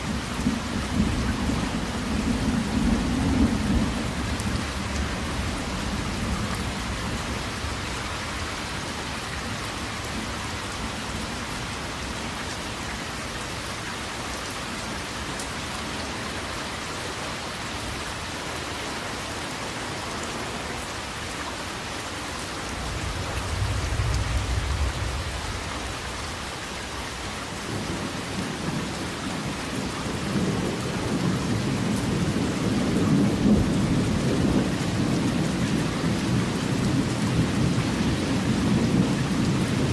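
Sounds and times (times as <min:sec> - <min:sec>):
steady rain falling: 0:00.0 - 0:39.9
low rolling thunder: 0:00.1 - 0:07.4, 0:22.8 - 0:26.5, 0:27.7 - 0:39.9.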